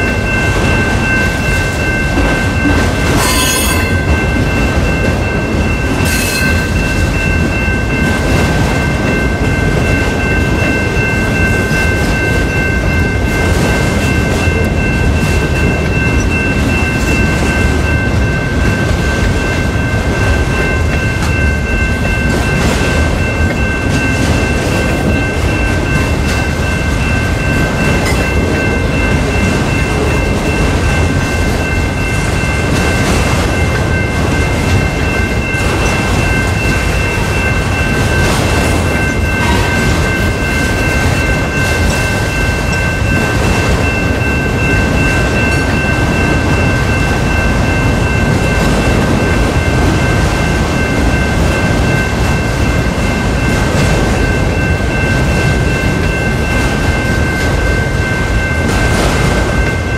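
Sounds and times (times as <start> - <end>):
crossing bell ringing: 0.0 - 59.9
train wheels rumbling on rail: 0.0 - 59.9.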